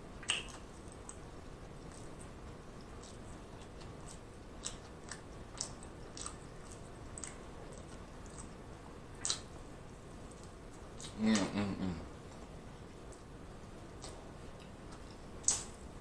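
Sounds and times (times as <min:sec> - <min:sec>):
faint chewing mouth smacks: 0:00.2 - 0:08.6, 0:09.2 - 0:09.5, 0:13.9 - 0:15.7.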